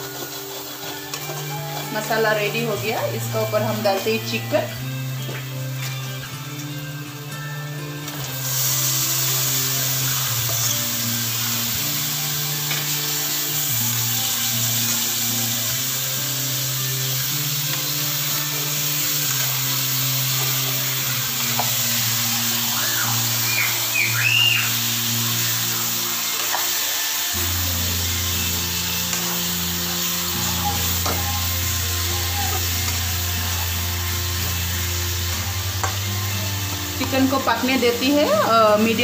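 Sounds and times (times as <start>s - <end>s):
steel spoon stirring in pan: 0.0s - 2.5s
background music: 0.0s - 39.0s
chicken sizzling in oil: 0.0s - 39.0s.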